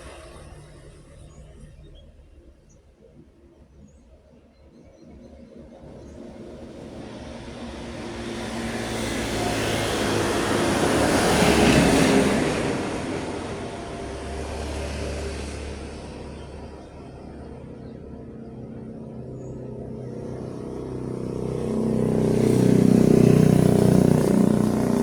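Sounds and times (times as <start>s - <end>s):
vehicle driving past: 5.8s - 17.6s, 20.0s - 25.0s.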